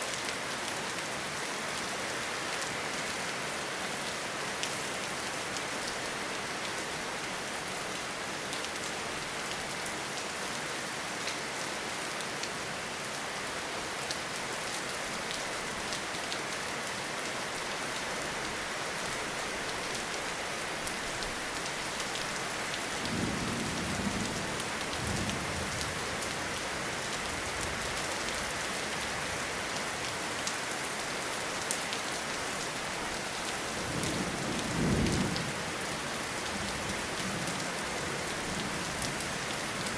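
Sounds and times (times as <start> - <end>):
steady rainfall: 0.0 - 39.9
low rumbles of thunder: 23.0 - 25.8, 33.9 - 35.6.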